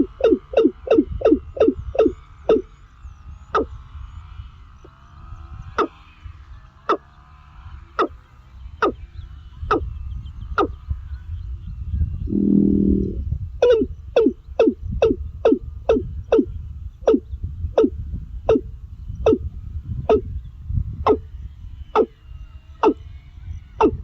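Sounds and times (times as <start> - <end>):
faint chirping: 12.2 - 14.4.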